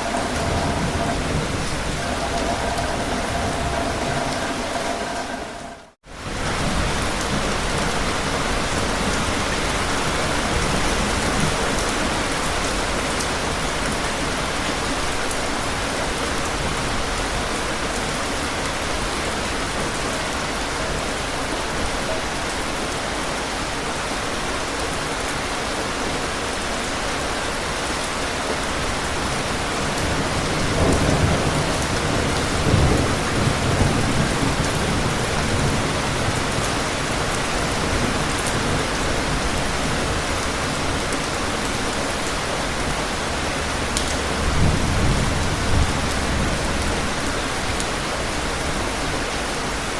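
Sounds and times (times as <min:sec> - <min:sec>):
low rumbling thunder: 0:00.0 - 0:09.5, 0:29.9 - 0:41.0, 0:42.8 - 0:48.8
heavy rain: 0:00.0 - 0:49.9.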